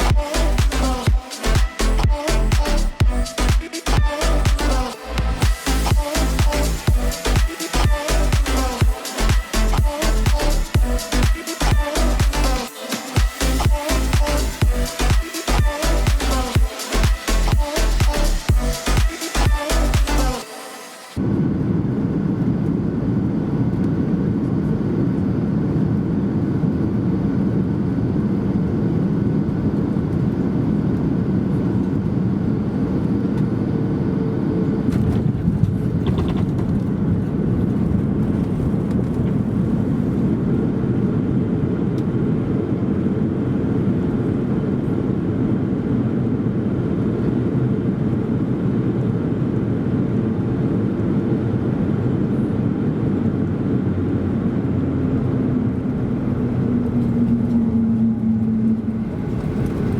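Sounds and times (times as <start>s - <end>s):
airflow: 0.0s - 23.5s
jet engines rumbling: 0.0s - 59.9s.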